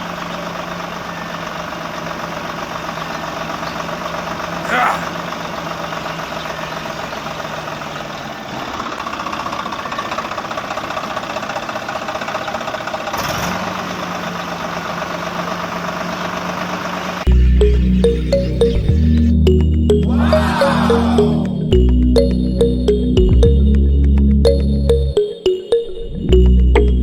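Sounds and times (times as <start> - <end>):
music: 17.3 - 27.0.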